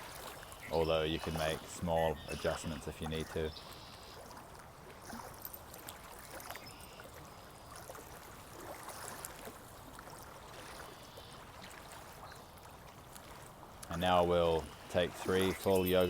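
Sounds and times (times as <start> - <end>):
small water splashes: 0.0 - 16.0
stream water trickling: 0.0 - 16.0
faint bird calls: 0.4 - 4.3, 10.7 - 11.4.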